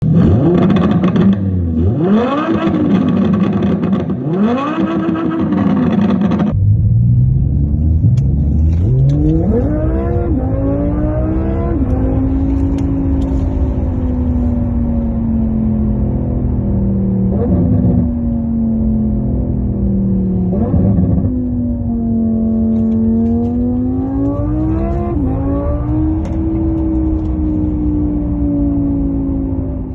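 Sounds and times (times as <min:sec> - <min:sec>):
synthesized engine sound revving: 0:00.2 - 0:12.4.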